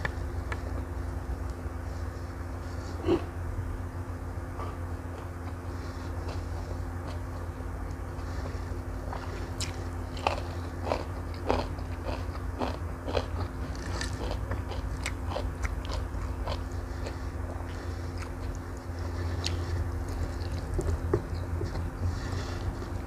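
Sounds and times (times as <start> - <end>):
low hum: 0.0 - 23.0
close chewing of noodles: 8.2 - 23.0.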